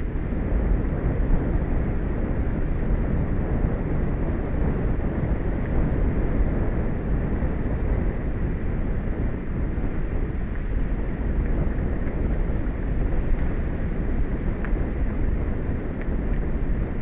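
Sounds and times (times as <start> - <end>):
wind rumbling on microphone: 0.0 - 17.0
faint ticks: 14.6 - 14.8.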